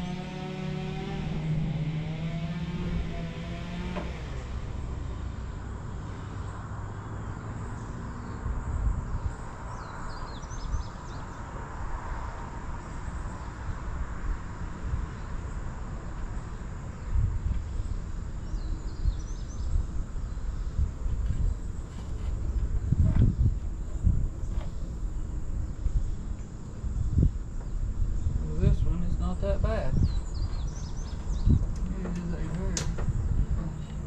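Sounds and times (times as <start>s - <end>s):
low rumble with gusts: 0.0s - 34.0s
bird chirps: 29.1s - 34.0s.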